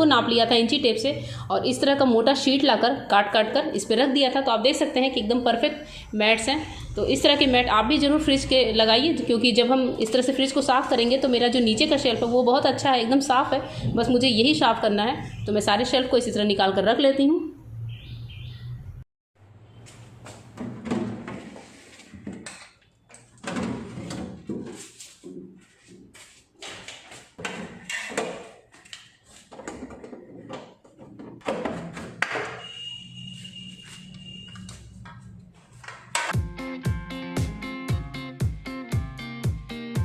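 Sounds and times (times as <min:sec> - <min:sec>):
glass shelves knocking and scraping: 0:20.5 - 0:22.8, 0:23.4 - 0:25.6, 0:26.7 - 0:28.8, 0:29.4 - 0:32.6
guitar music: 0:36.4 - 0:40.0.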